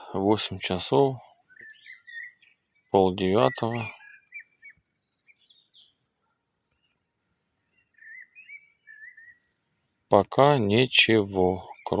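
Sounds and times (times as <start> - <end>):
steady high hiss: 0.0 - 1.6, 2.4 - 3.9, 9.2 - 12.0
faint songbird calls: 0.0 - 12.0.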